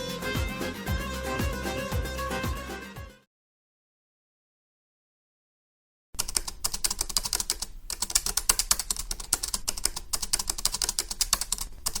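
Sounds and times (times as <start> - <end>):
keyboard typing: 6.2 - 12.0.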